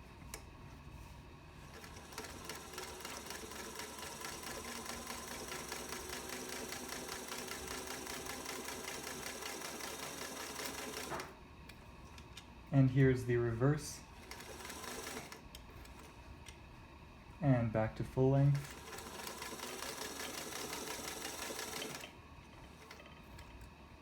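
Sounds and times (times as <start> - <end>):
sewing machine stitching: 1.7 - 11.3, 14.2 - 16.1, 18.5 - 23.5.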